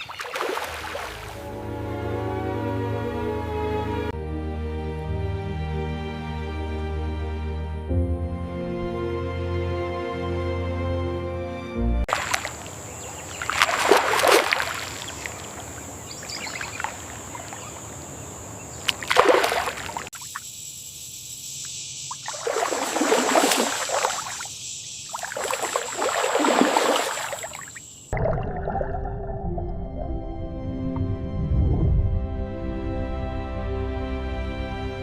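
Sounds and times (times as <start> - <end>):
water sloshing and splashing: 0.0 - 1.4, 12.1 - 20.4, 22.1 - 29.3.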